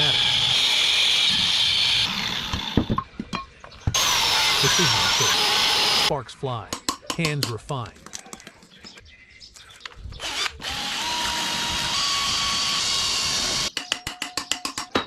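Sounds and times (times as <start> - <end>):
power tool cutting metal: 0.0 - 2.8, 4.0 - 6.1, 10.2 - 13.7.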